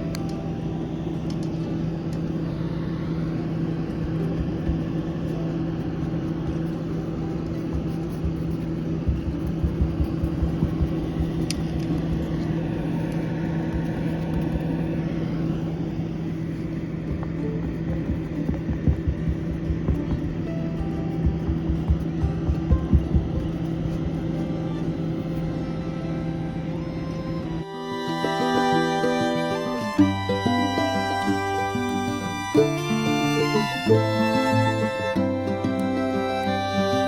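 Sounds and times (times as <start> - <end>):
constant rushing noise: 0.0 - 26.7
low machine hum: 0.0 - 37.0.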